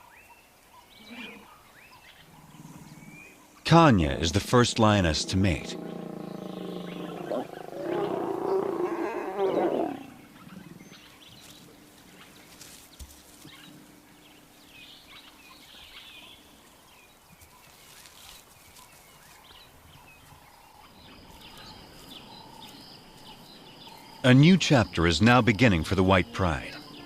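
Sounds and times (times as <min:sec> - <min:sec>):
lion growling: 0:02.2 - 0:11.2.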